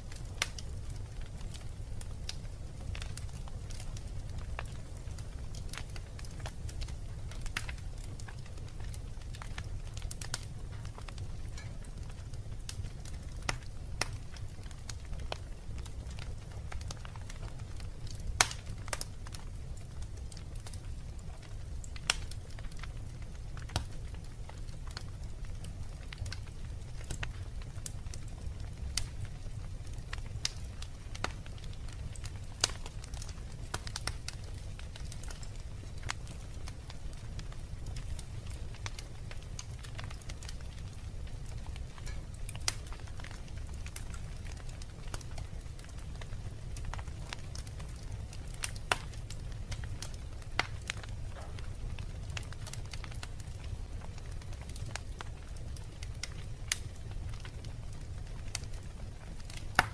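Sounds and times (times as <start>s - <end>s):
low fire rumble: 0.0s - 59.9s
wood fire crackling and popping: 0.0s - 59.9s.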